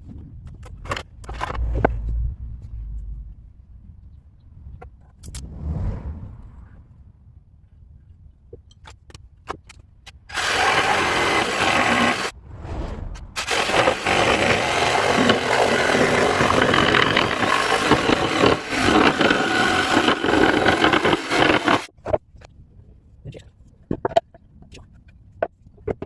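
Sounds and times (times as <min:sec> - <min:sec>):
power tool cutting wood: 0:10.3 - 0:12.3, 0:13.4 - 0:21.9.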